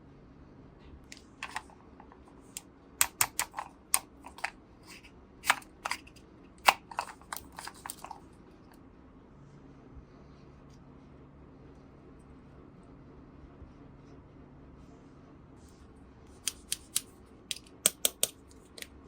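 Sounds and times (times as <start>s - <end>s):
toy pieces clicking and tapping: 3.0s - 4.5s, 16.5s - 18.9s.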